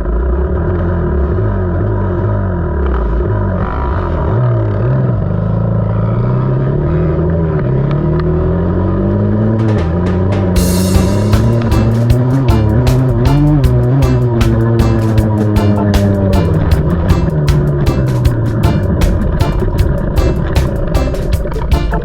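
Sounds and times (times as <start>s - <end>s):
knocks and clicks: 9.6s - 22.0s.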